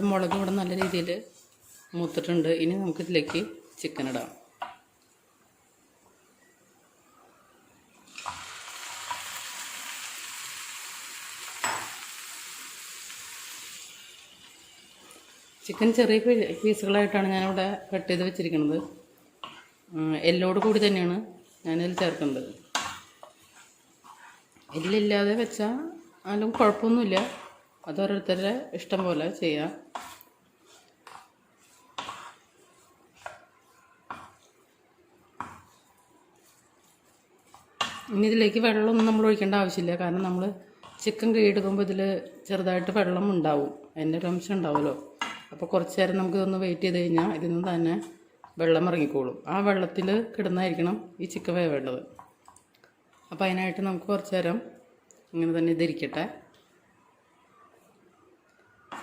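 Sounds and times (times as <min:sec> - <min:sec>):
chicken being stirred: 0:00.0 - 0:04.8, 0:12.4 - 0:43.4, 0:57.8 - 0:59.0
chicken sizzling in a pan: 0:08.1 - 0:15.9.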